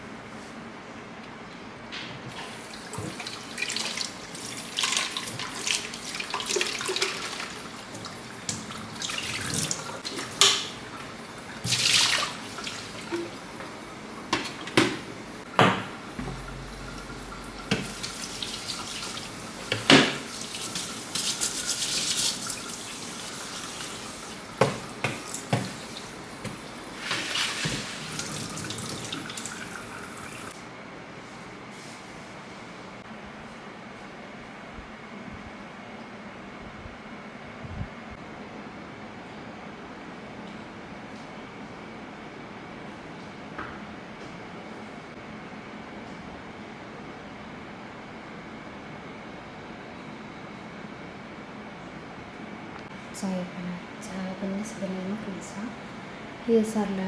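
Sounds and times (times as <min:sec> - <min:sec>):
tap running into sink: 0:12.6 - 0:21.6, 0:24.6 - 0:30.5
dishes knocking and clattering: 0:13.2 - 0:18.1.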